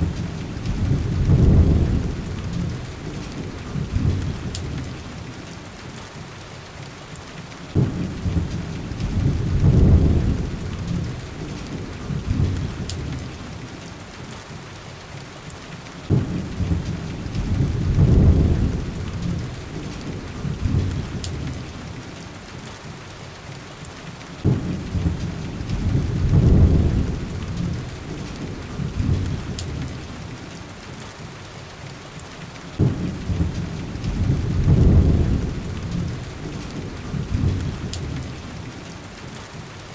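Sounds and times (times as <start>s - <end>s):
deep thunder rumbles: 0.0s - 5.3s, 7.7s - 13.7s, 16.0s - 22.0s, 24.4s - 30.4s, 32.8s - 38.7s
heavy rain: 0.0s - 39.9s.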